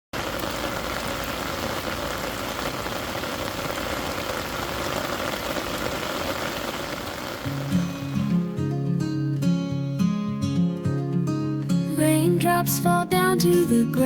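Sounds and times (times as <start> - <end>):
steady rain: 0.1 - 8.5.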